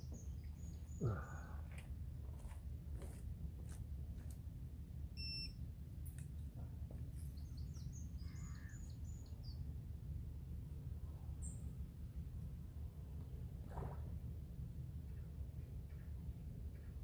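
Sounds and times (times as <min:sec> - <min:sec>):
birds chirping: 0:00.0 - 0:01.8.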